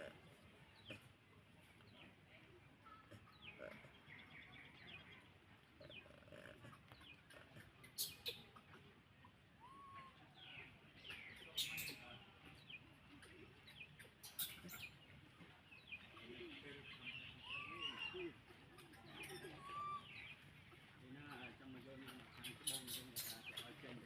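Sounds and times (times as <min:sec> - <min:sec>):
high chirps and squeaks: 0:07.8 - 0:08.5, 0:11.1 - 0:12.1, 0:14.0 - 0:15.0, 0:22.1 - 0:23.8.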